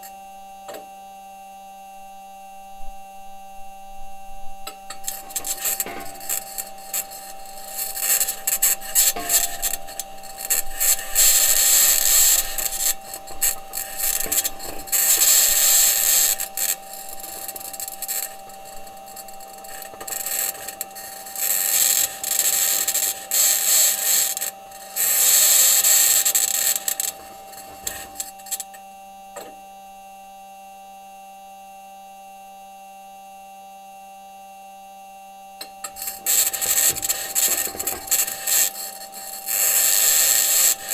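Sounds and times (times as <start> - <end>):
high-pitched scraping whine: 1.7 - 29.9, 35.6 - 40.9
metal wheels grinding over rock: 4.8 - 28.8, 35.8 - 40.9.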